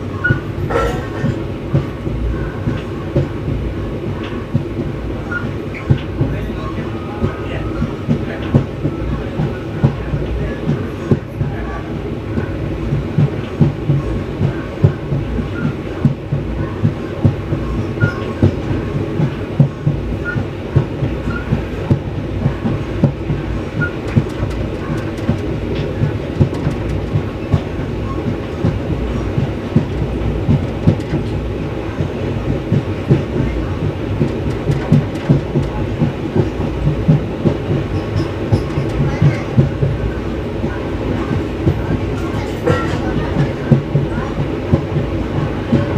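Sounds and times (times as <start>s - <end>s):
train rumble: 0.0s - 45.9s
wheels clattering over rail joints: 23.8s - 27.8s, 33.1s - 39.8s.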